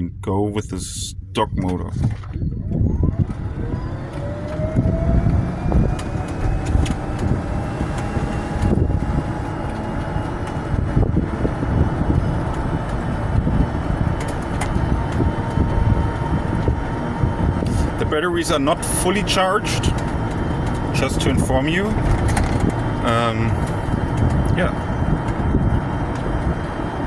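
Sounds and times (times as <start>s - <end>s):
electric motor whining: 2.6s - 17.7s
cart rolling on road: 2.6s - 27.0s.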